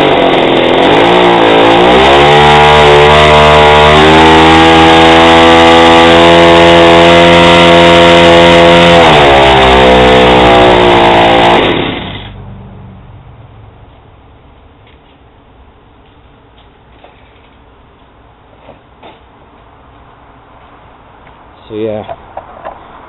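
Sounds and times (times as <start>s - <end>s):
two-stroke engine revving: 0.0s - 12.4s.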